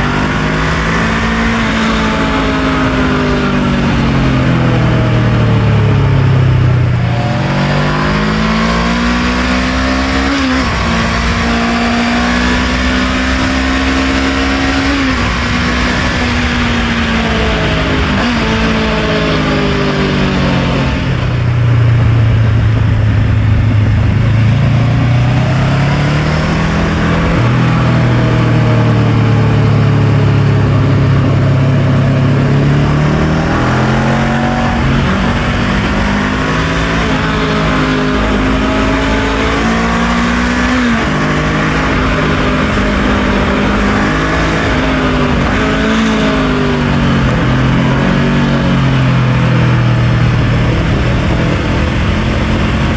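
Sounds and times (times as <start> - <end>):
motorcycle engine revving through gears: 0.0 - 52.9
steady rushing noise: 0.0 - 52.9.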